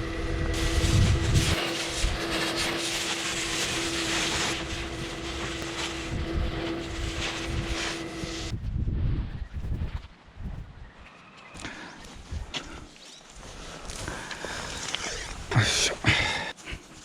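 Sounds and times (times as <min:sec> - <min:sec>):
pressure washer motor hum: 0:00.0 - 0:08.5
water jet hissing on boat hull: 0:00.5 - 0:08.5.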